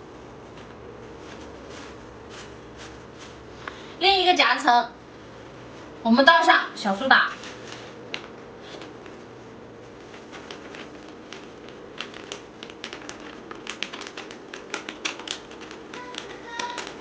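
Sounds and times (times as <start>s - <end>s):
face mask crinkling in hands: 9.8s - 17.0s.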